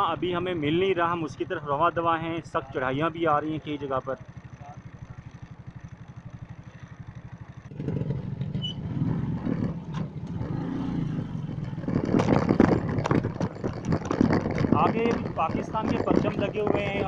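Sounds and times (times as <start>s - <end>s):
motorcycle engine running: 0.0s - 17.0s
knocks and rattles: 7.7s - 17.0s.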